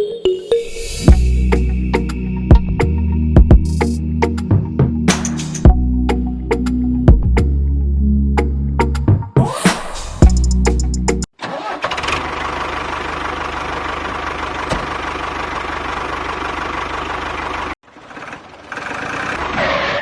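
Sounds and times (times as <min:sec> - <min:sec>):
music: 0:00.0 - 0:11.3.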